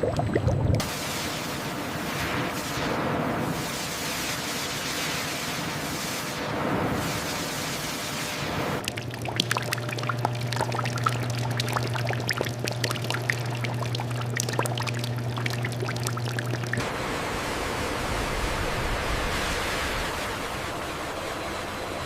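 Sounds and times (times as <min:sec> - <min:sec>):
liquid pouring and splashing: 0:00.0 - 0:00.9, 0:08.8 - 0:16.8
low steady hum: 0:00.0 - 0:00.9, 0:08.8 - 0:22.0.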